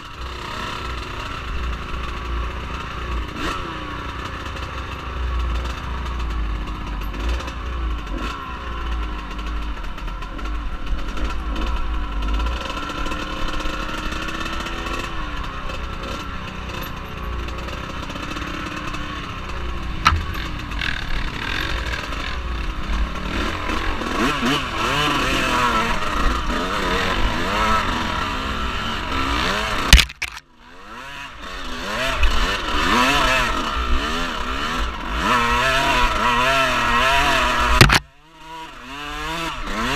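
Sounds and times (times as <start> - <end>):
off-road vehicle engine revving: 0.2 - 39.9
sharp knock: 20.0 - 21.4, 29.9 - 30.4, 37.8 - 38.1.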